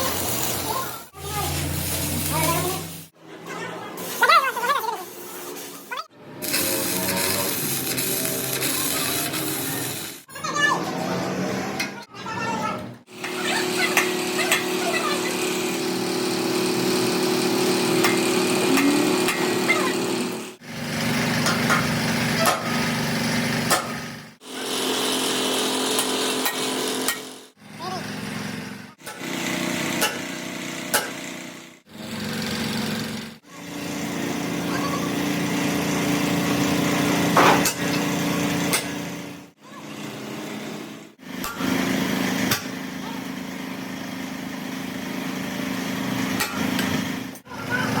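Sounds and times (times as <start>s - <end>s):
machine hum: 13.8s - 21.2s.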